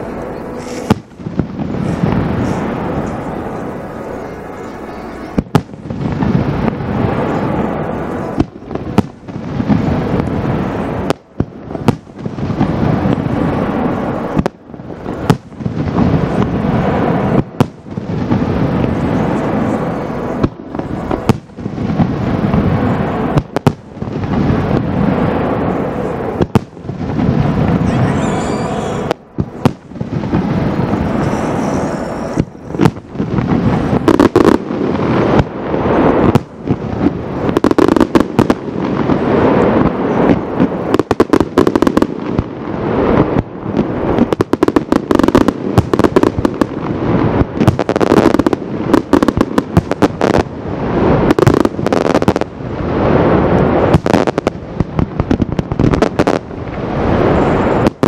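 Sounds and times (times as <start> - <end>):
fireworks shells bursting: 0.0 - 9.2
fireworks crackling: 0.0 - 58.0.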